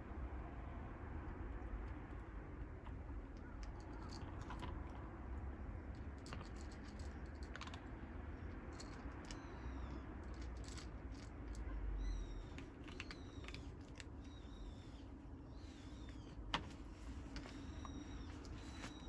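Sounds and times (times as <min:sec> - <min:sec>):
kittens crunching dry food: 0:01.8 - 0:16.3.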